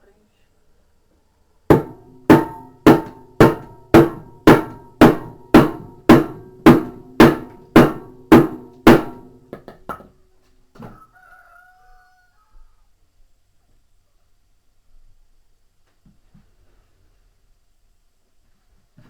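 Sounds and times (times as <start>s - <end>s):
hammer striking metal: 1.7s - 10.1s.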